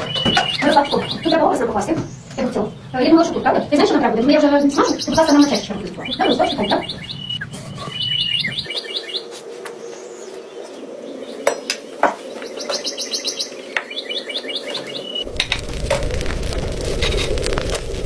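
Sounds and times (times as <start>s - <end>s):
songbird chirping: 0.0s - 15.4s
steady frying sizzle: 15.2s - 18.0s.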